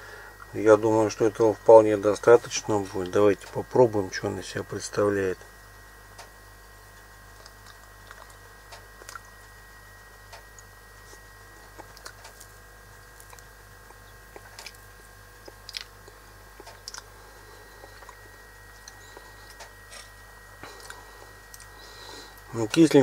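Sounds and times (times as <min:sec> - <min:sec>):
faint steady hum: 0:00.0 - 0:23.0
person chewing with crunches: 0:06.9 - 0:09.7, 0:10.3 - 0:22.9.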